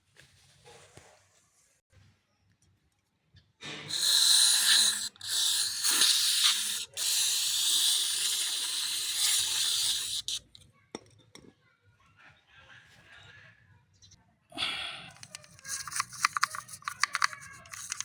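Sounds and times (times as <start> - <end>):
aerosol spray hissing: 3.9 - 10.4.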